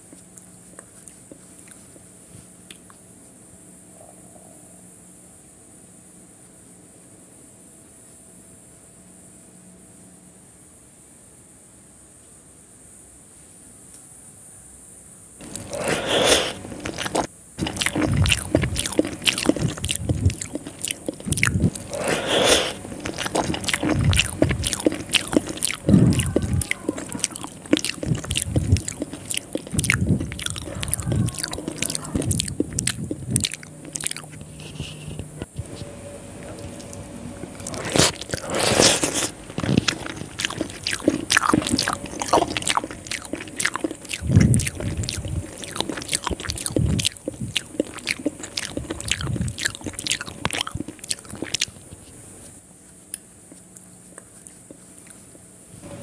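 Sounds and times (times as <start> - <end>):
person chewing and lip smacking: 0.0 - 3.0, 15.4 - 55.5.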